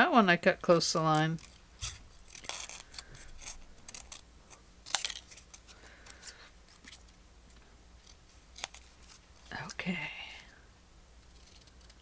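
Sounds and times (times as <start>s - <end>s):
small scissors snipping paper: 1.0s - 6.2s, 8.0s - 9.7s, 11.3s - 12.0s.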